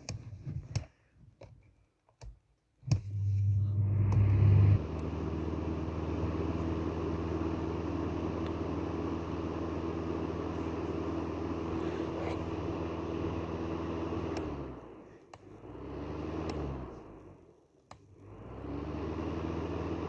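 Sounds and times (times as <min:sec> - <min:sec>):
whir of blown air: 0:02.9 - 0:15.0
fan heater motor humming: 0:02.9 - 0:20.0.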